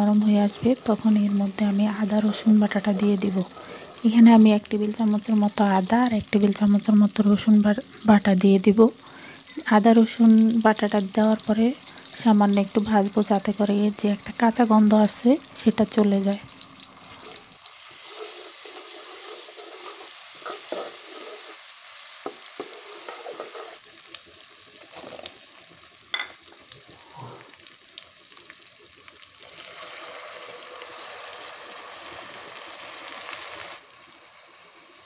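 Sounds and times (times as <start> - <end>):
onions sizzling in hot oil: 0.0 - 35.0
spatula scraping metal pot: 18.0 - 21.6, 22.6 - 23.8.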